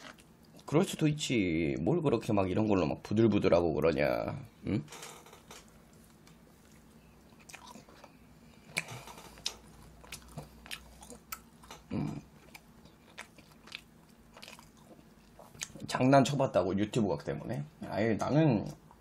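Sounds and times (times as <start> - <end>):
wet mouth chewing: 5.9 - 15.9.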